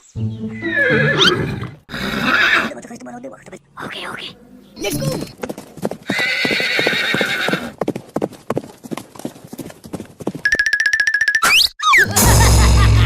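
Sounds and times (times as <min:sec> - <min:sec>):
horse whinnying: 0:00.6 - 0:02.8, 0:06.1 - 0:07.8
hooves clip-clopping: 0:04.8 - 0:10.9.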